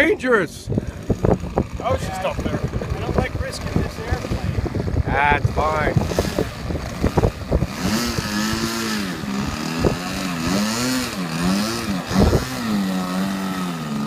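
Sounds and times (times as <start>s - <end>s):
wind buffeting microphone: 0.0s - 13.3s
model airplane engine droning: 0.7s - 14.0s.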